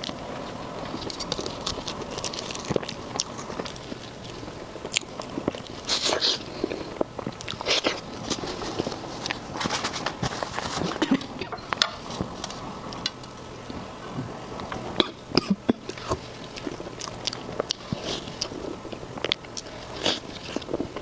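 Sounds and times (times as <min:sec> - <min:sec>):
chewing and biting food: 0:00.0 - 0:13.2, 0:15.8 - 0:21.0.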